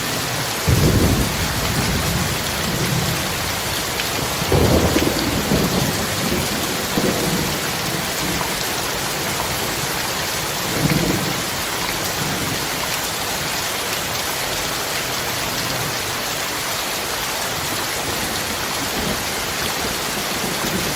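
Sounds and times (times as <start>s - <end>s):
heavy rain: 0.0s - 20.9s
low thunder rumbles: 0.6s - 9.8s.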